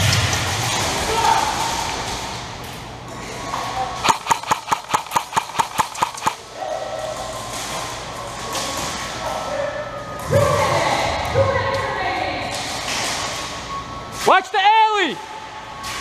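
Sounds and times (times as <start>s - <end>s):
airsoft gun firing: 4.0s - 6.4s.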